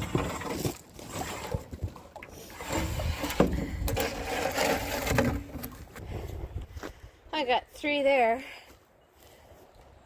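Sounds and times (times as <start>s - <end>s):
wooden planks scraping and knocking: 0.0s - 6.2s.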